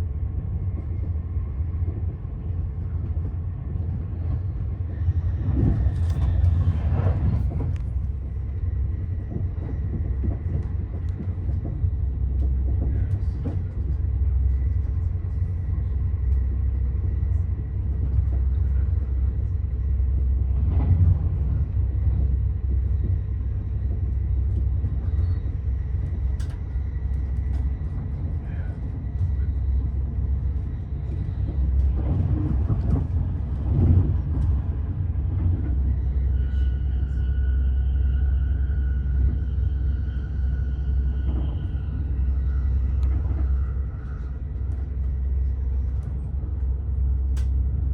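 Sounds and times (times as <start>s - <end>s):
train rumble inside carriage: 0.0s - 47.9s.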